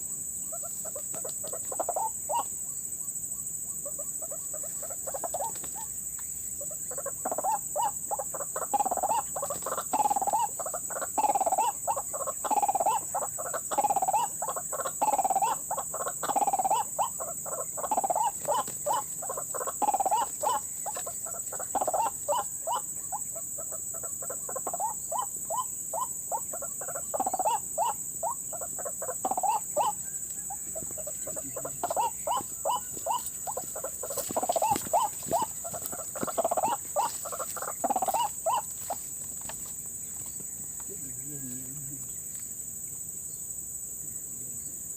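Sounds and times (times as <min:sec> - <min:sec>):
waterhen croaking calls: 0:00.0 - 0:02.5, 0:03.8 - 0:05.9, 0:06.6 - 0:39.0.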